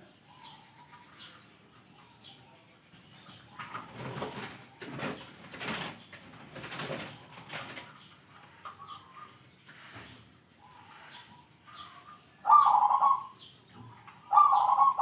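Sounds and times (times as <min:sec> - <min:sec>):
wings flapping: 0:03.6 - 0:08.0
dove cooing: 0:12.4 - 0:15.0.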